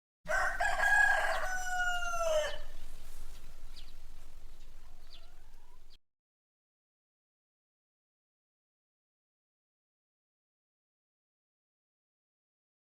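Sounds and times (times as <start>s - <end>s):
rooster crowing: 0.3s - 6.0s
faint short bird calls: 2.2s - 6.0s.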